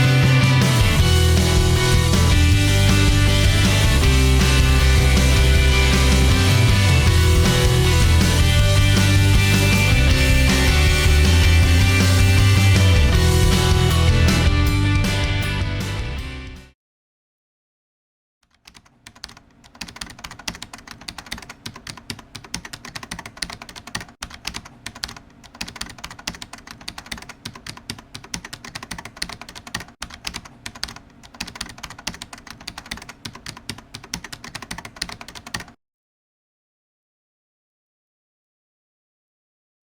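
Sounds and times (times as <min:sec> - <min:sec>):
fast typing on keyboard: 0:18.5 - 0:35.8.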